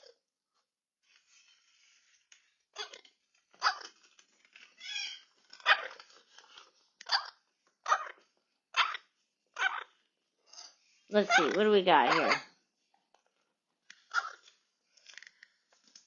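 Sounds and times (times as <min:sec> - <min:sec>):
dog barking: 0:05.6 - 0:06.0, 0:07.1 - 0:08.1, 0:11.3 - 0:12.5.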